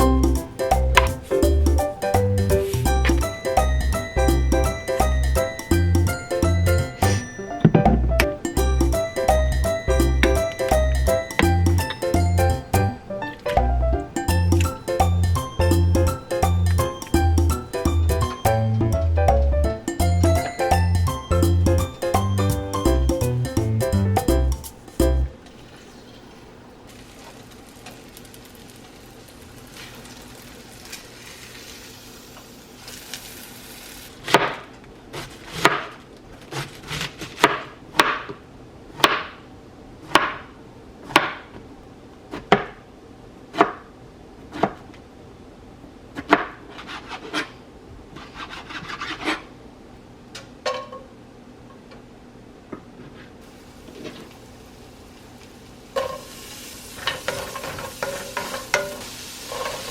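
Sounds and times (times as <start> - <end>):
knife chopping on wooden board: 1.0 - 1.2, 10.2 - 12.0, 35.6 - 35.9, 36.5 - 38.4, 39.0 - 39.4, 40.1 - 40.4, 41.1 - 41.5.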